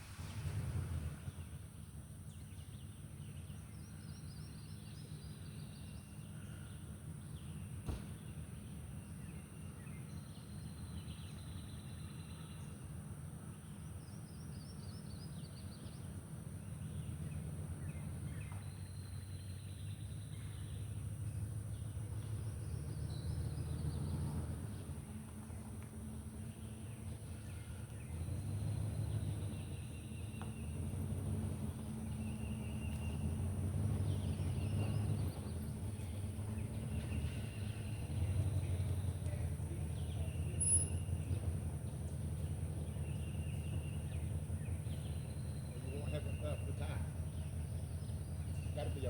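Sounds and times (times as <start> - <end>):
steady low rumble: 0.0 - 2.9
songbirds chirping: 0.0 - 49.0.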